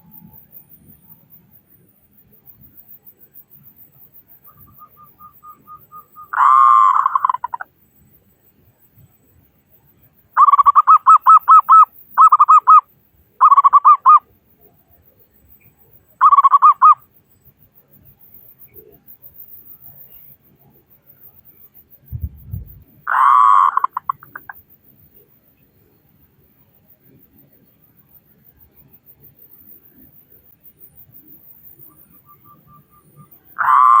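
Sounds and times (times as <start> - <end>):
dove cooing: 5.1 - 7.6, 23.1 - 24.6, 32.7 - 34.0.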